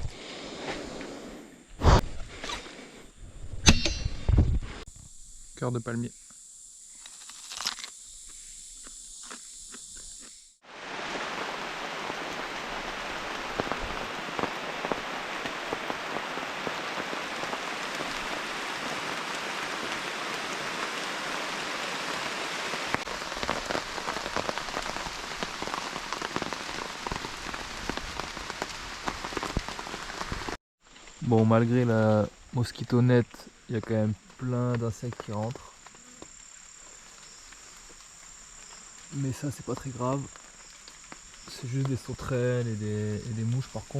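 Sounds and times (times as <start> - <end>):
steady rain falling: 10.6 - 43.9.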